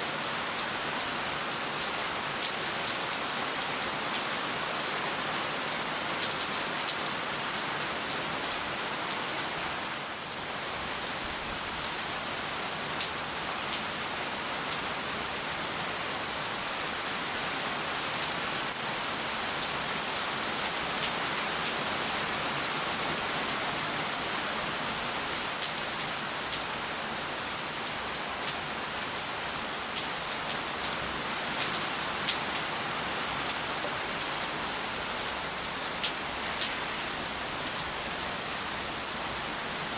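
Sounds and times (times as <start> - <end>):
steady rain hiss: 0.0 - 39.9
raindrops ticking on surfaces: 33.6 - 37.0.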